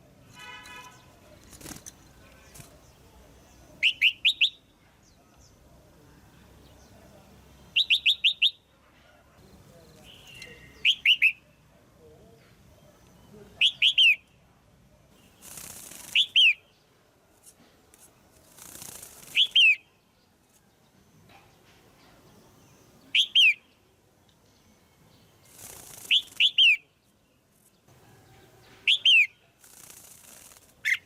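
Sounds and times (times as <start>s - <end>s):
bird calling sharp chirps: 3.8s - 4.7s, 7.7s - 8.6s, 15.2s - 16.7s, 18.6s - 19.9s, 23.1s - 23.7s, 25.4s - 26.9s, 28.8s - 31.0s.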